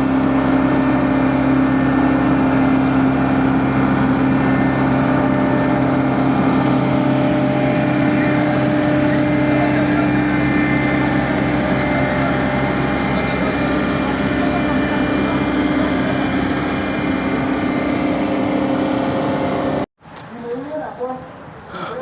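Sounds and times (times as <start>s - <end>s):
engine running steadily: 0.0s - 19.9s.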